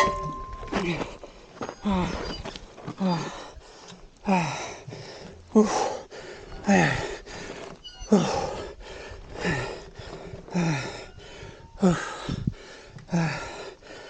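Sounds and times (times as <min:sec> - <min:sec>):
man panting with groans: 0:02.9 - 0:14.0.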